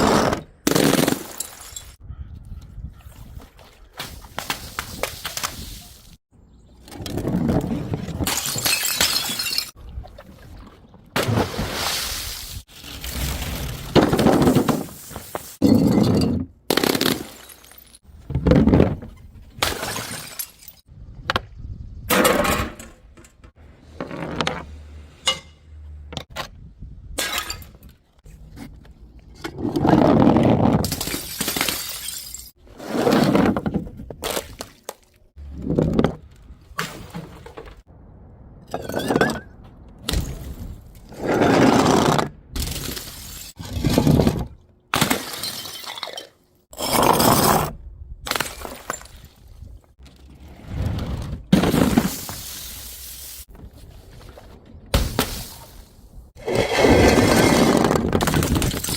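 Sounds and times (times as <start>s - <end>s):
glass bottles smashing: 0.8s - 2.0s, 8.2s - 9.8s, 13.0s - 18.0s, 19.6s - 20.9s, 30.9s - 32.6s, 45.0s - 46.4s, 58.2s - 58.9s.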